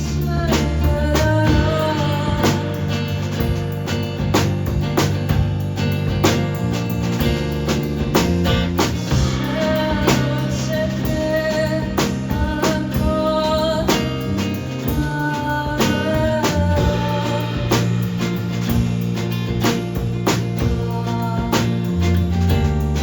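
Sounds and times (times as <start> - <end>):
live band playing: 0.0 - 23.0.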